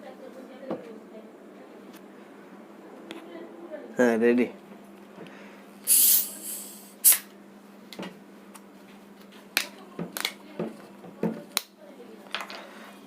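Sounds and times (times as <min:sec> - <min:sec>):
carbonation hissing from bottle: 0:05.8 - 0:07.3.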